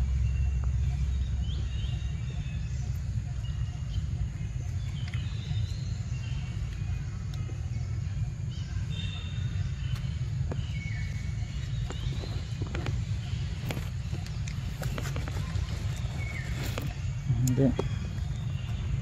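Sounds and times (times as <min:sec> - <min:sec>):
birds chirping: 0:00.0 - 0:19.0
steady low rumble: 0:00.0 - 0:19.0.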